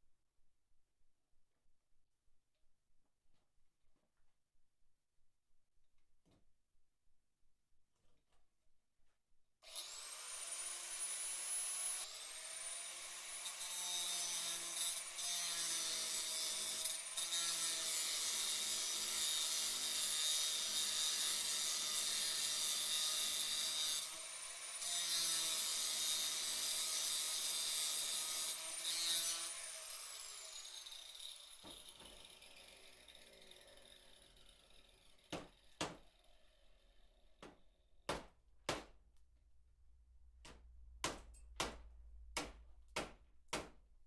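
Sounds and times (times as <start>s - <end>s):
angle grinder cutting metal: 9.7s - 37.0s.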